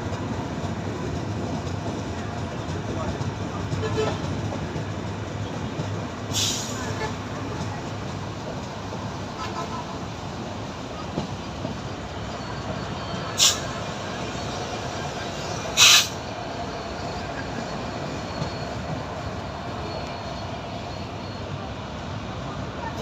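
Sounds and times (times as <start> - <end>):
train rumbling: 0.0 - 23.0
short sharp hisses: 6.3 - 6.8, 13.4 - 13.8, 15.8 - 16.2.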